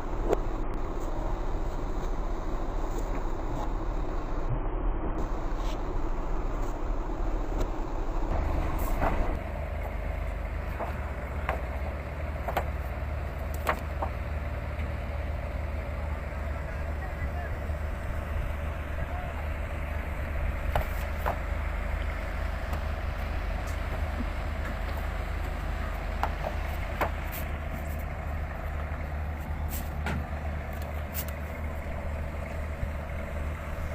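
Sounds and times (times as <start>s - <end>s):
boat engines humming: 0.0s - 33.9s
sharp knocks: 10.7s - 12.8s, 26.2s - 27.3s.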